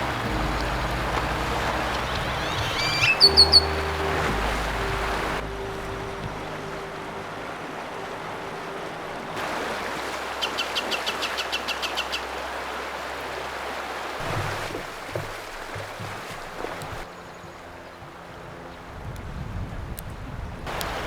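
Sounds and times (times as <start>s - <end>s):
small bird calling high notes: 0.0s - 6.9s
soft low knocks: 0.0s - 7.3s
rushing river water or wind: 0.0s - 21.0s.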